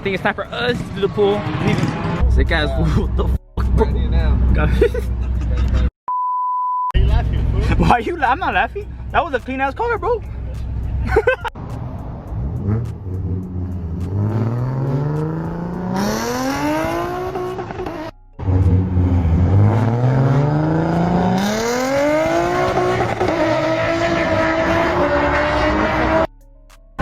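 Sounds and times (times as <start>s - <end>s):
car engine accelerating hard: 7.0s - 26.3s.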